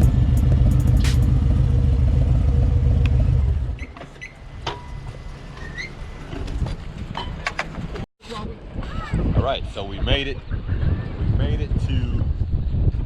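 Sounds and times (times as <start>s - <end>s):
motorcycle engine rumbling: 0.0s - 8.0s.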